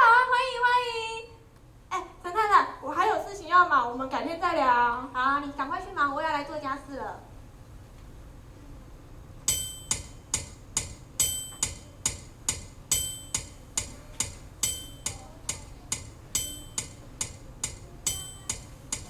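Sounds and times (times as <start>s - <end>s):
clock tick-tock: 9.5s - 19.0s.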